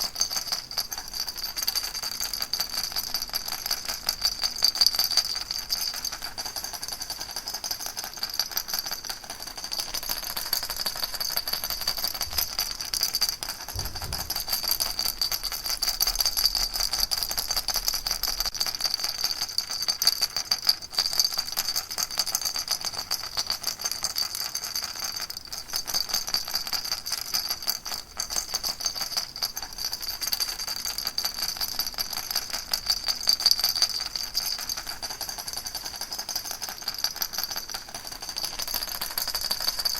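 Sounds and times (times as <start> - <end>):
baby rattle shaken fast: 0.0 - 18.6, 27.3 - 39.9.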